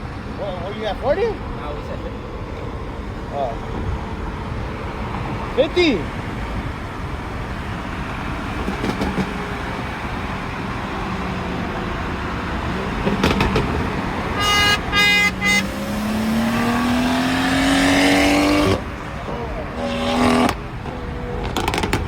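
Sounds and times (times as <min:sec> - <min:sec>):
road and engine noise: 0:00.0 - 0:22.0
engine accelerating hard: 0:04.8 - 0:22.0
car horn honking: 0:08.8 - 0:21.9.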